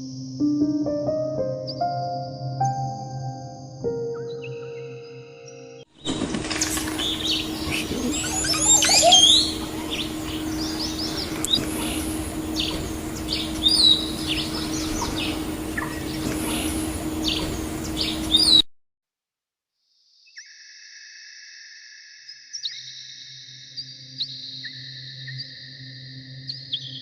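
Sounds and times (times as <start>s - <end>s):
songbirds chirping: 4.1s - 18.6s
background hiss: 6.0s - 18.6s
low hum: 6.0s - 18.6s.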